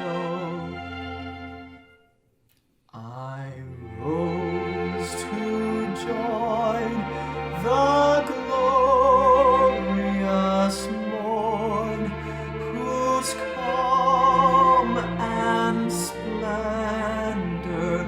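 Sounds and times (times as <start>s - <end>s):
voices singing long notes: 3.7s - 18.0s
sustained low accompaniment: 3.8s - 18.0s.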